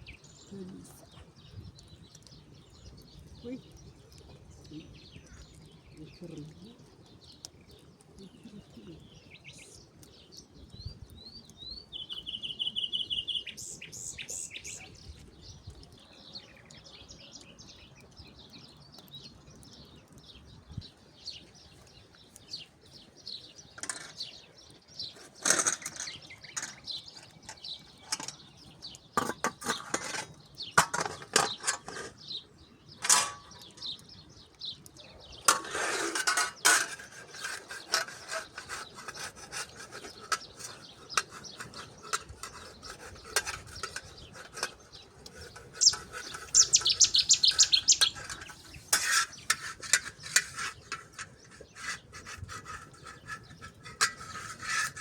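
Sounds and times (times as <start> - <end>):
bird chirps and trill: 8.2 - 35.5, 36.1 - 55.0
sharp knocks and clatters: 29.1 - 32.2.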